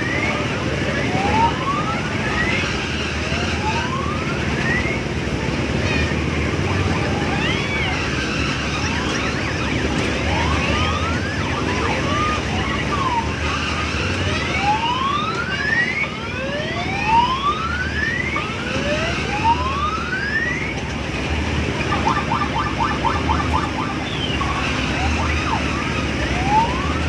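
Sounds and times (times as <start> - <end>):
fairground din: 0.0 - 27.0
electronic whoop rising in pitch: 5.9 - 20.8, 21.8 - 27.0
rapid electronic beeps: 6.9 - 13.8, 21.8 - 26.0.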